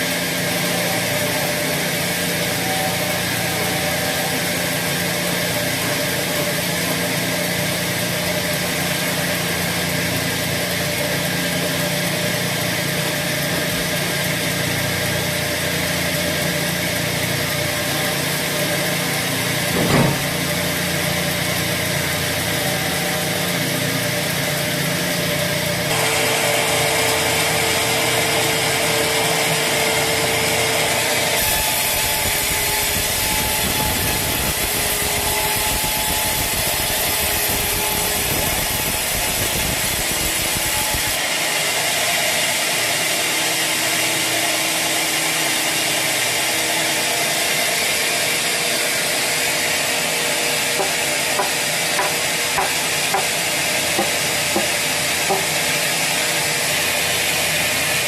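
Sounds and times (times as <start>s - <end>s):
sawmill saw cutting log: 0.0s - 58.0s.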